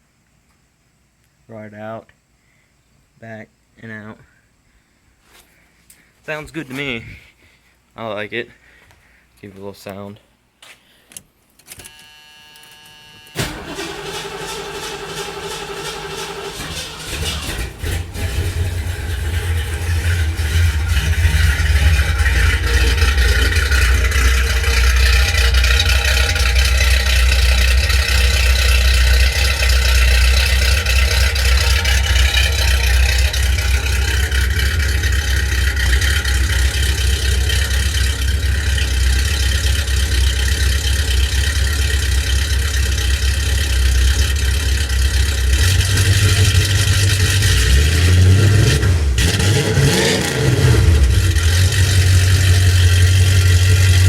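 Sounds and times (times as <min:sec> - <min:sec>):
car engine idling and revving: 0:13.4 - 0:54.0.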